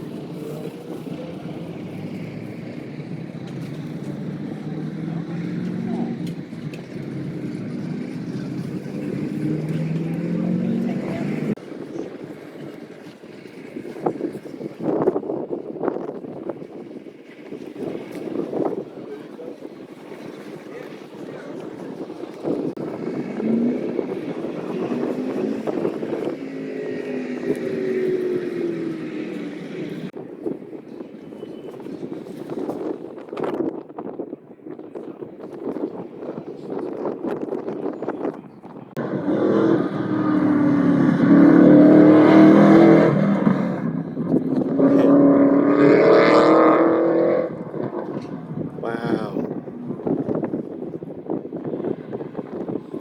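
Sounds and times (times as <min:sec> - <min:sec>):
truck engine revving: 0:00.0 - 0:11.6, 0:22.7 - 0:30.2, 0:38.9 - 0:50.3
wind buffeting microphone: 0:00.0 - 0:53.0.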